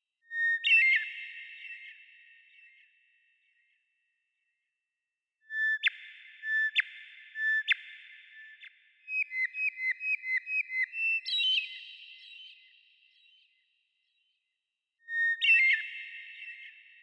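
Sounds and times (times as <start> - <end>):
songbird whistling: 9.1 - 12.7.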